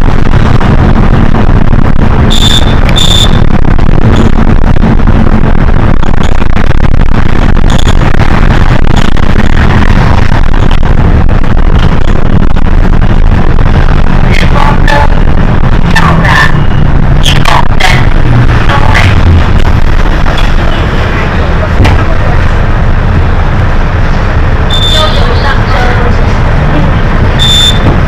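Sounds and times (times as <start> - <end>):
bus engine and road rumble: 0.0 - 28.0
short high electronic beeps: 2.3 - 3.4, 24.7 - 25.3, 27.4 - 27.9.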